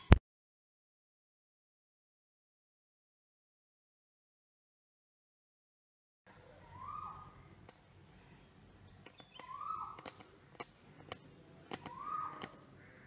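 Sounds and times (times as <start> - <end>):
bird calling rising note: 6.6 - 7.5, 9.2 - 10.1, 11.8 - 13.0
sharp clicks: 9.0 - 12.7.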